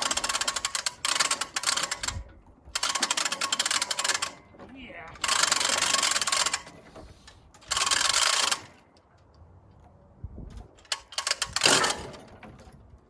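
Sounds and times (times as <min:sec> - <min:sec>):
ratchet rapid clicking: 0:00.0 - 0:02.2, 0:02.8 - 0:04.4, 0:05.2 - 0:06.7, 0:07.6 - 0:08.7, 0:10.9 - 0:12.2.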